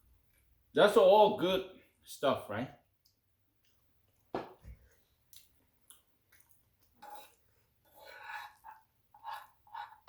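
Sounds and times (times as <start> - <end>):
wet chewing mouth sounds: 5.2 - 7.4.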